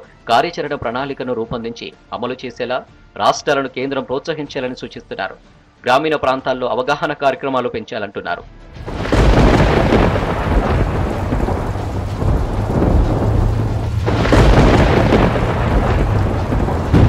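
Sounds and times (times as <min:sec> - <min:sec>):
heavy rain: 0:08.8 - 0:17.0
sharp crack of thunder: 0:08.8 - 0:17.0
thunder rumbling: 0:08.8 - 0:17.0.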